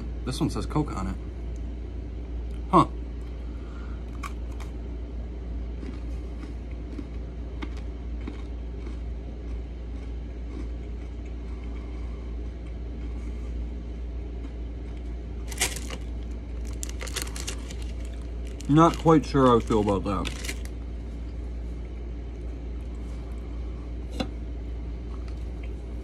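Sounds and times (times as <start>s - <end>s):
steady low hum: 0.0s - 26.0s
cookie crunching: 5.6s - 13.3s, 14.3s - 20.8s.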